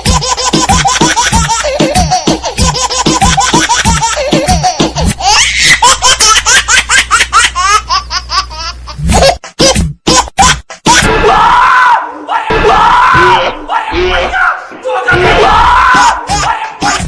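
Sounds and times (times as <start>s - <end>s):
background music with beat: 0.0s - 5.2s
rapid high-pitched laughter: 0.0s - 11.1s, 15.7s - 17.0s.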